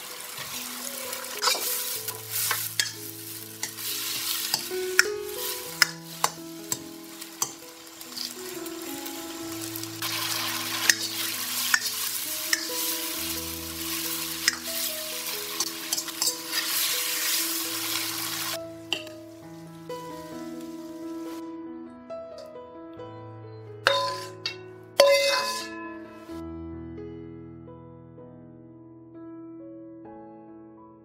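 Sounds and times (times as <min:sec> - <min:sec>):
food sizzling in a pan: 0:00.0 - 0:21.4, 0:23.9 - 0:25.8
spatula scraping a pan: 0:00.4 - 0:08.4, 0:10.0 - 0:13.2, 0:15.5 - 0:17.4, 0:23.9 - 0:25.8.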